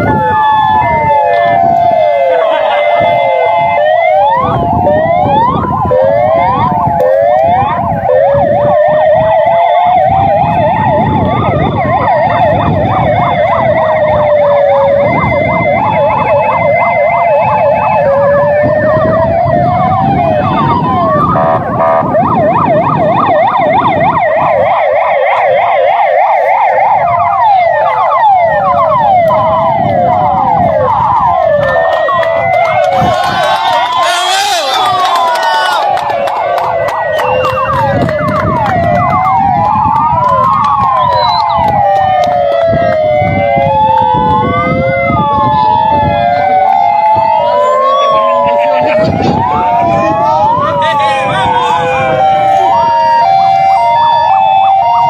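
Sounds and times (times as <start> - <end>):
fire engine sirens: 0.0 - 55.0.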